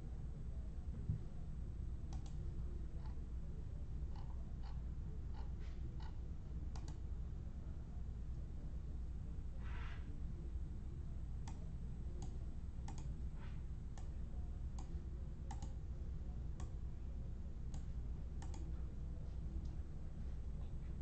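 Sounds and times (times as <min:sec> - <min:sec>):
steady low hum: 0:00.0 - 0:21.0
sharp clicks: 0:12.2 - 0:13.1, 0:15.5 - 0:15.8.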